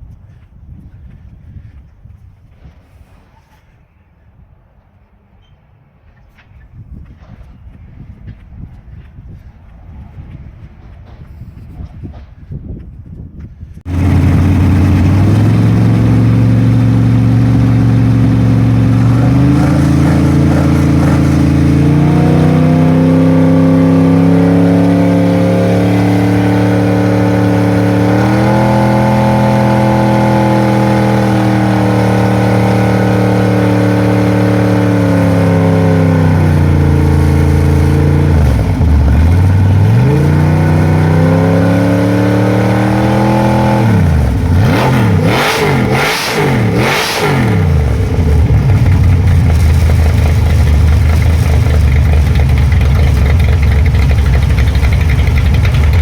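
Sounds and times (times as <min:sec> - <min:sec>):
stock car engines running hard: 0:13.9 - 0:56.0.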